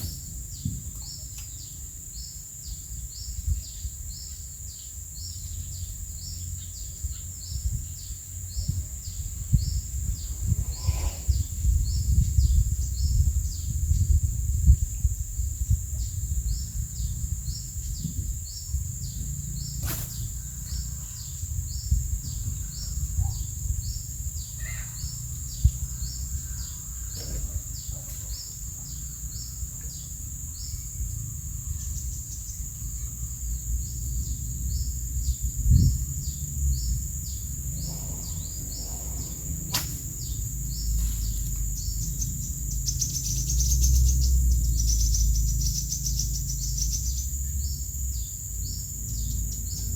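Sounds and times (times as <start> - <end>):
high insect drone: 0.0 - 49.9
low rumble: 5.6 - 48.2
sharp click: 39.7 - 40.0.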